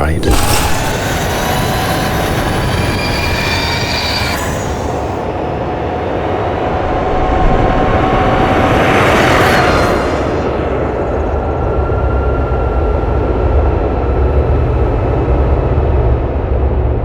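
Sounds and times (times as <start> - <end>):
electric motorcycle whine: 0.2 - 14.3.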